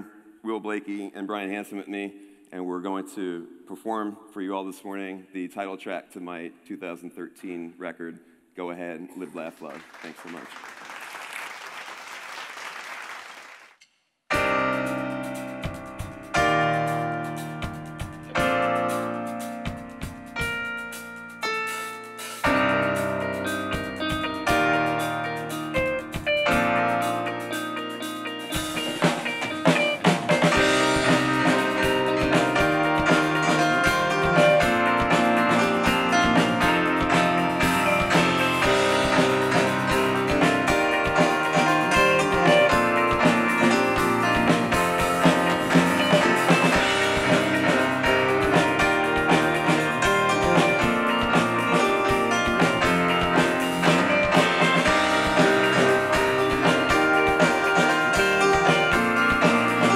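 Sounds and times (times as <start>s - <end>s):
drum kit: 14.3s - 59.9s
electric guitar: 14.3s - 59.9s
rock band playing: 14.3s - 59.9s
stage keyboard: 14.3s - 59.9s.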